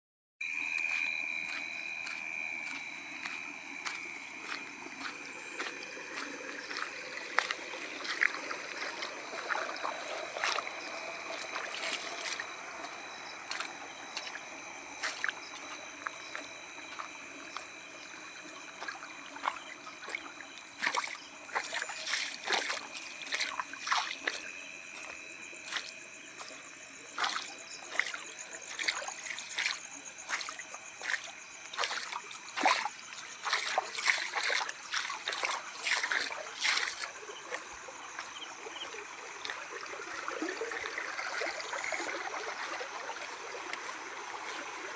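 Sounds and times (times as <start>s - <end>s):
rain dripping on wet ground: 28.7s - 39.7s, 40.6s - 44.9s.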